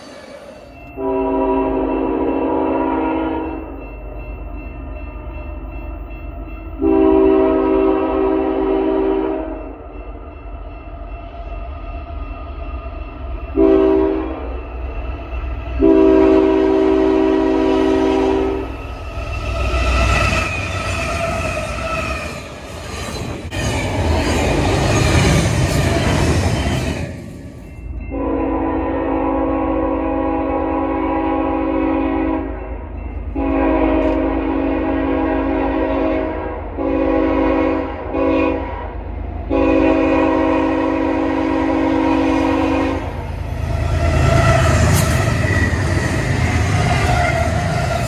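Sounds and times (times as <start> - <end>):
wheels rattling on rail: 0.0 - 1.1, 3.2 - 28.3, 41.0 - 48.0
locomotive air horn blasts: 1.0 - 3.6, 6.8 - 9.6, 13.6 - 14.6, 15.8 - 18.8, 28.1 - 32.6, 33.4 - 43.2.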